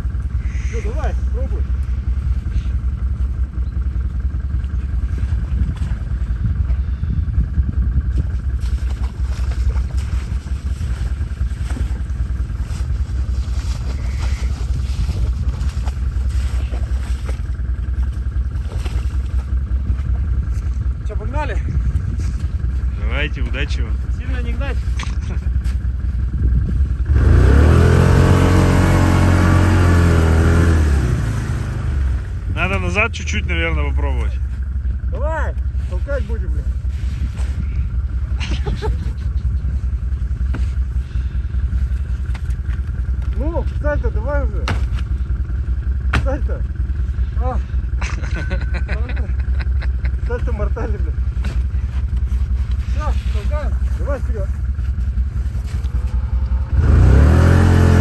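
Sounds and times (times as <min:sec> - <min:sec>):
quad engine rumbling: 0:00.0 - 0:58.0
atv engine revving hard: 0:27.0 - 0:32.4, 0:55.6 - 0:58.0.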